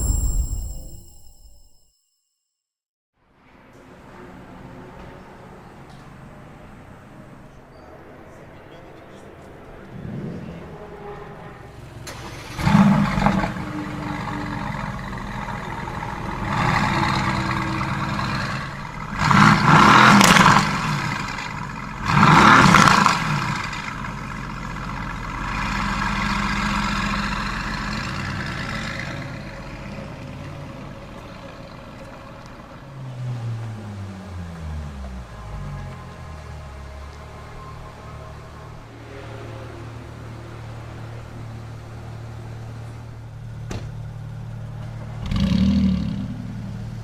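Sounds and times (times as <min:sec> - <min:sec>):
supercar engine starting and revving: 0:11.8 - 0:31.1, 0:45.0 - 0:47.0.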